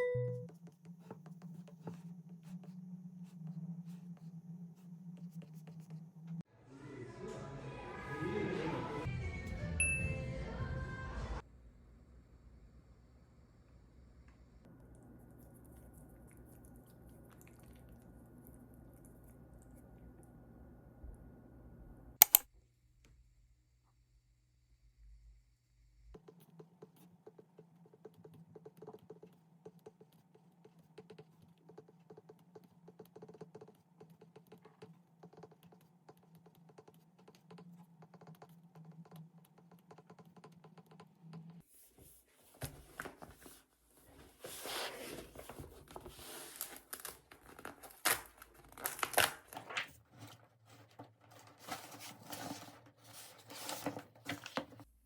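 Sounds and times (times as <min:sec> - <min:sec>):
packaging rustling and tearing: 0:44.6 - 0:50.0.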